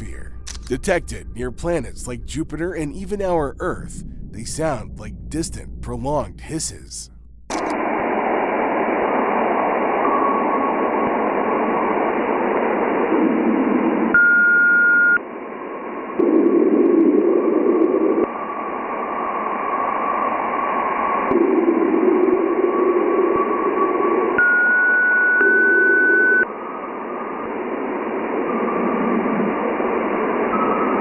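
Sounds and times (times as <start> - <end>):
low swells of noise: 0.0 - 14.1
radio-like static: 0.0 - 14.1.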